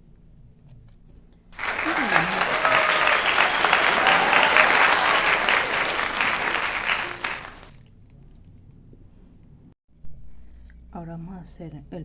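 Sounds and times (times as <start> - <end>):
crowd clapping: 1.6 - 7.7.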